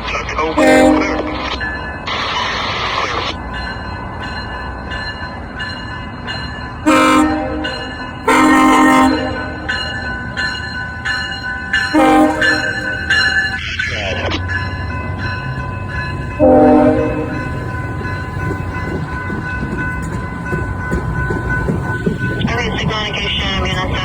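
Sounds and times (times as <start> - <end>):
passing train rumble: 0.0 - 24.0
locomotive air horn blasts: 0.6 - 1.4, 6.8 - 9.7, 11.9 - 13.1, 16.4 - 17.4.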